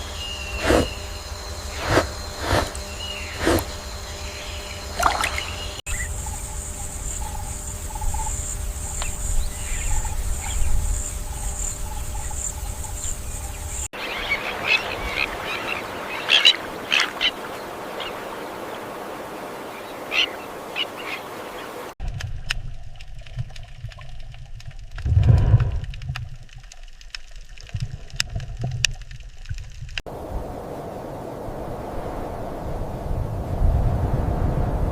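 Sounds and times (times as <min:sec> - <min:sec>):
bird chirps: 0:00.0 - 0:06.2
steady high buzz: 0:00.0 - 0:13.9
low rumble: 0:22.0 - 0:26.6.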